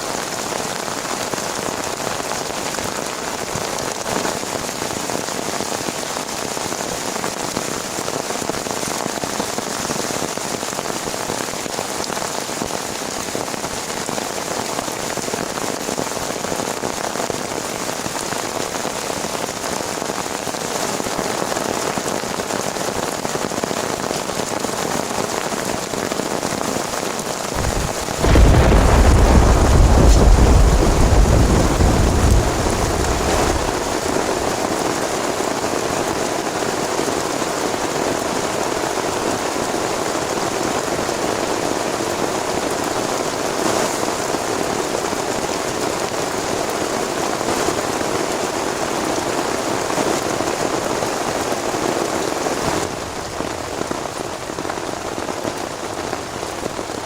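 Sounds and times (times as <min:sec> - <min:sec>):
heavy rain falling: 0:00.0 - 0:57.0
thunder rumbling: 0:27.6 - 0:34.6.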